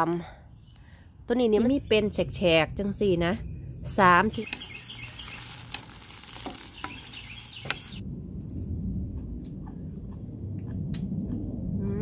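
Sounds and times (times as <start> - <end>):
low outdoor rumble: 1.6 - 12.0
bird chirps: 3.4 - 5.7, 6.5 - 8.0
food sizzling in a wok: 4.3 - 8.0.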